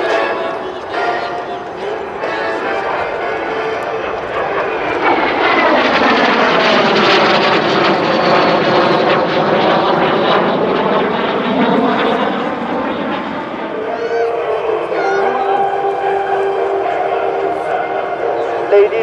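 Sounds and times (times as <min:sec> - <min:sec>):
jet engine roaring past: 0:00.0 - 0:19.0.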